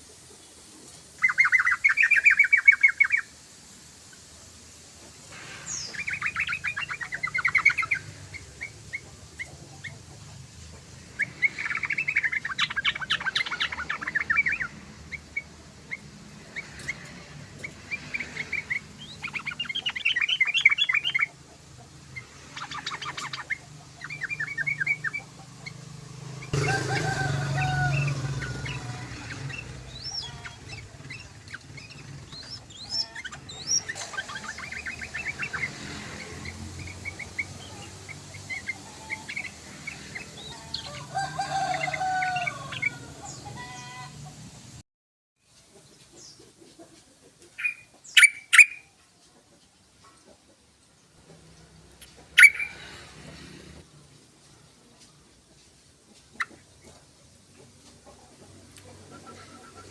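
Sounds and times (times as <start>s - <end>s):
bird bubbling chattering song: 1.2s - 3.3s, 5.7s - 10.2s, 10.9s - 25.8s, 28.7s - 40.9s, 47.5s - 48.9s, 52.2s - 52.9s.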